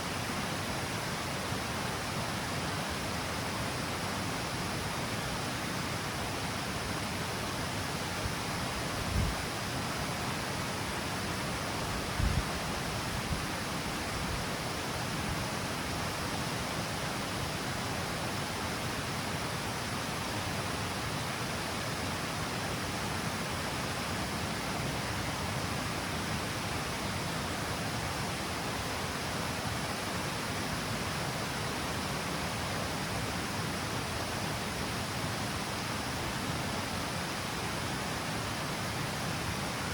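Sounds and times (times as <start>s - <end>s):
water rushing over cascade steps: 0.0s - 39.9s.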